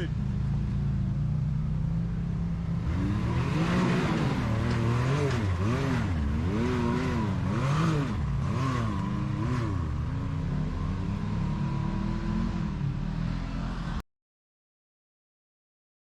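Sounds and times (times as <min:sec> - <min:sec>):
engine revving: 0:02.7 - 0:14.0.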